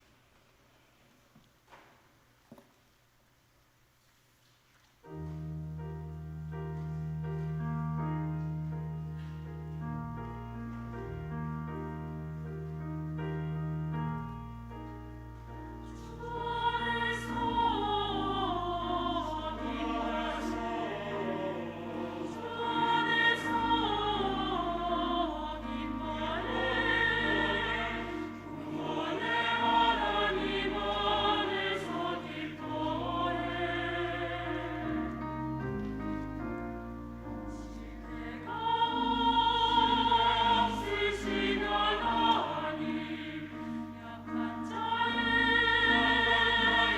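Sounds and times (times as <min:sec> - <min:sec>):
piano accompaniment: 0:05.0 - 0:46.9
choir singing: 0:15.8 - 0:36.2, 0:37.2 - 0:46.9.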